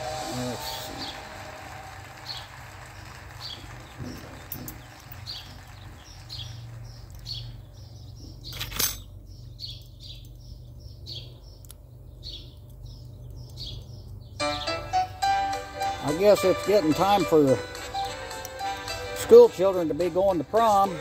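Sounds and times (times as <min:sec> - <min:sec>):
small bird chirping: 0:03.4 - 0:14.9.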